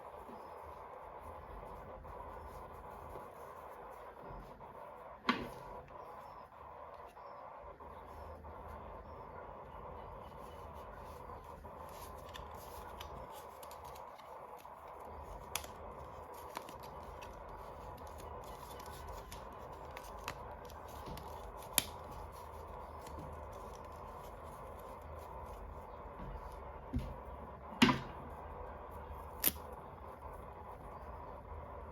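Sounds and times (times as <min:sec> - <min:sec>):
faint steady hum: 0:00.0 - 0:31.9
packaging clicks: 0:11.8 - 0:25.6.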